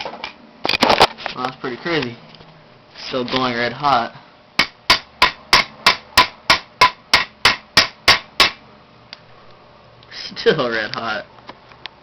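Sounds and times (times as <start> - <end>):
hammer striking steel: 4.6 - 8.6.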